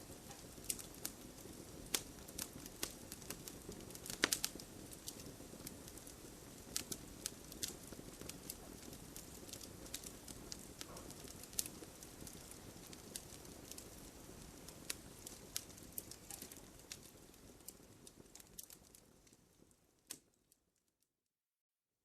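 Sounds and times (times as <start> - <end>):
hiss of burning: 0.0 - 19.4
campfire crackling and popping: 0.0 - 20.5.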